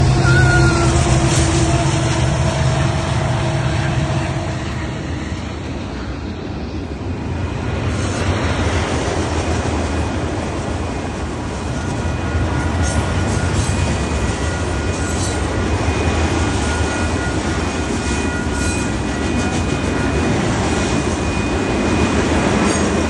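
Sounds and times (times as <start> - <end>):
diesel locomotive engine drone: 0.0 - 23.0
train rumbling on rails: 0.0 - 23.0.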